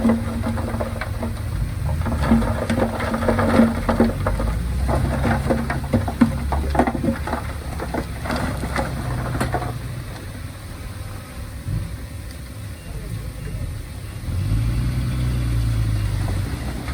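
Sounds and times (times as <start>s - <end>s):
rapid clattering and rattling: 0.0s - 10.4s
diesel engine running: 0.0s - 16.9s.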